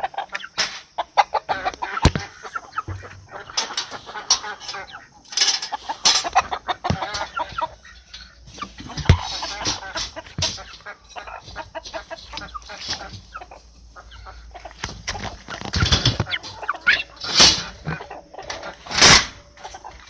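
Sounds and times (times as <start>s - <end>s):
chicken clucking: 0.0s - 20.0s
trap clattering and knocking: 2.9s - 13.3s, 14.8s - 17.9s.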